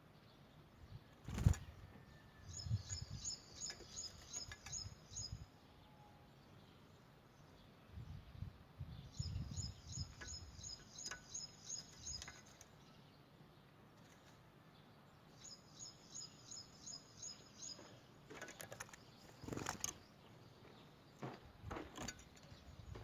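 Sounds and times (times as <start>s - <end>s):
canary singing: 2.4s - 6.2s, 9.1s - 13.0s.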